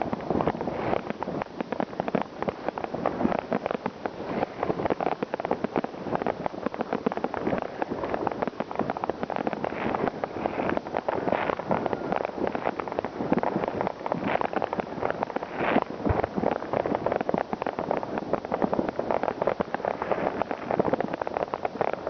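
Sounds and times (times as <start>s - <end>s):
fireworks crackling and banging: 0.0s - 22.0s.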